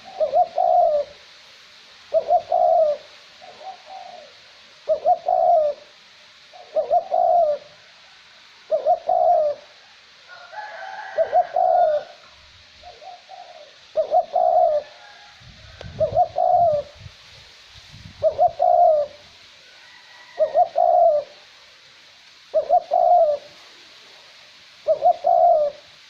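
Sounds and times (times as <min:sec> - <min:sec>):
dove cooing: 0:00.0 - 0:01.2, 0:02.1 - 0:07.9, 0:08.6 - 0:17.1, 0:18.0 - 0:19.3, 0:20.0 - 0:21.4, 0:22.5 - 0:23.6, 0:24.8 - 0:25.9
light wind hiss: 0:00.0 - 0:26.0.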